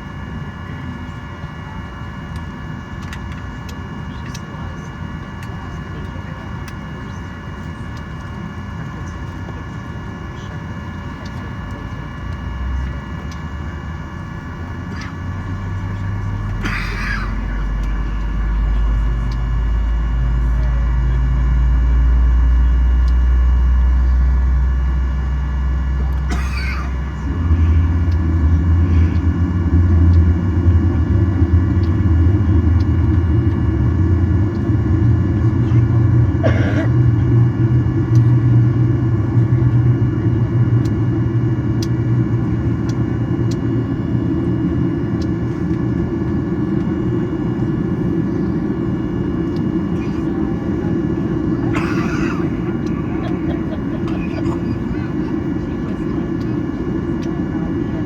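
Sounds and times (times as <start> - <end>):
cabin whine: 0.0 - 58.0
de-icing truck spraying rumble: 0.0 - 58.0.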